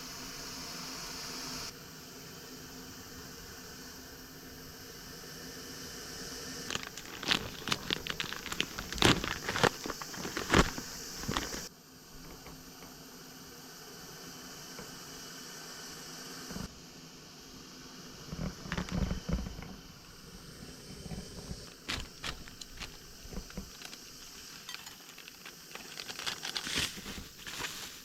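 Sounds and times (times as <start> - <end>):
background hiss: 0.0 - 28.0
packaging crinkling and tearing: 6.7 - 11.7, 18.3 - 19.8, 21.1 - 28.0.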